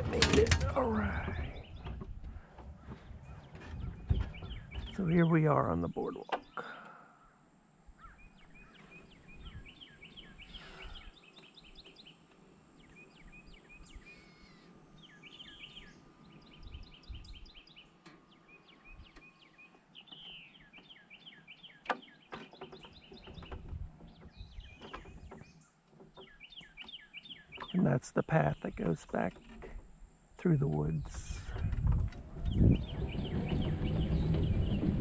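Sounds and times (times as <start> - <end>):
wind on microphone: 0.0 - 4.9, 9.3 - 9.7, 23.3 - 25.4, 31.0 - 35.0
songbirds singing: 0.0 - 35.0.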